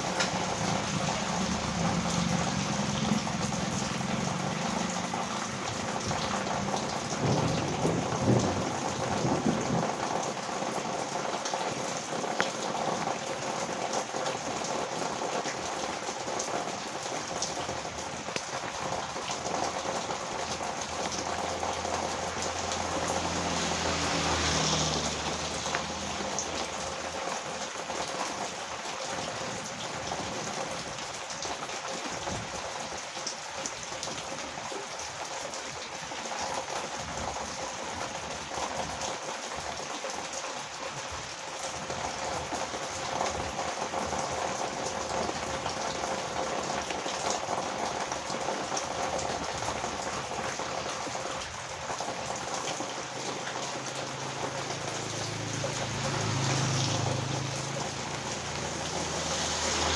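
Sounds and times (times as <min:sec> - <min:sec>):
vehicle engine passing by: 0:00.0 - 0:11.0, 0:18.9 - 0:28.5, 0:47.5 - 0:59.9
heavy rain on a road: 0:00.0 - 0:59.9.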